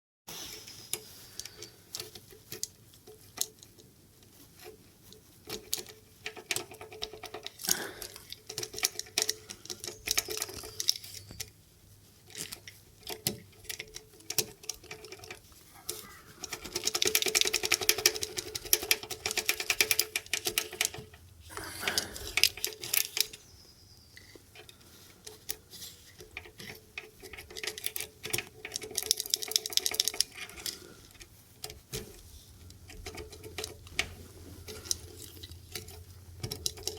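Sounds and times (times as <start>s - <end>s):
key jiggling in a lock: 12.3s - 21.3s, 26.2s - 32.1s, 34.7s - 36.9s.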